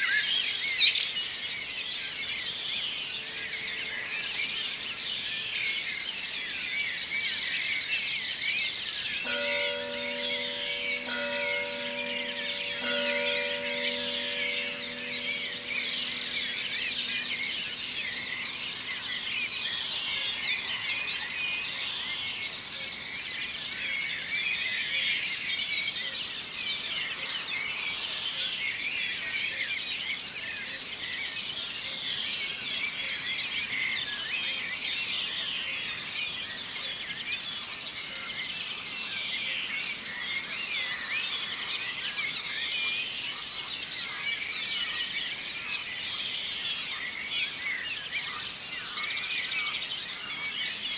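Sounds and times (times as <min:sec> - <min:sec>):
birds chirping and trilling: 0:00.0 - 0:30.3.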